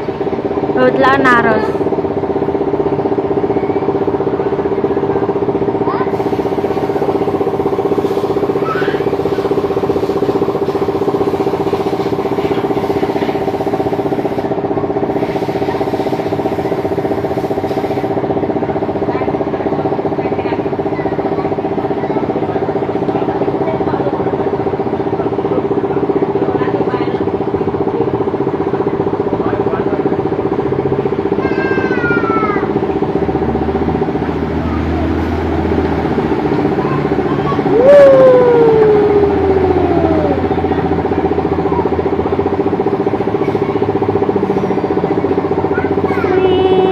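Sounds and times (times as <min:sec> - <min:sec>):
engine running steadily: 0:00.0 - 0:46.9
loud falling whine: 0:37.6 - 0:42.6.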